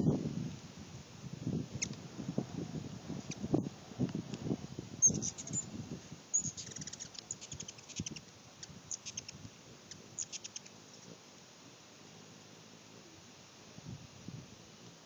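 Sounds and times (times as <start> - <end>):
wind buffeting microphone: 0.0 - 9.6
hummingbird high-pitched chips: 5.0 - 5.7, 6.3 - 11.1.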